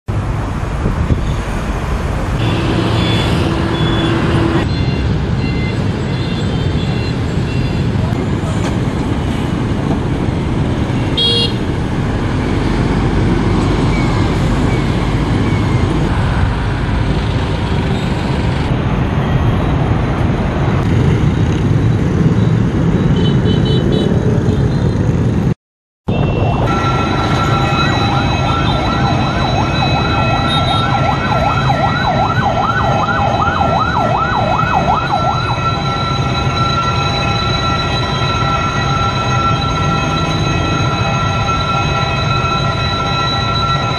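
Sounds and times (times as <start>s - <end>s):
train rumbling: 7.9s - 23.0s, 26.6s - 32.8s.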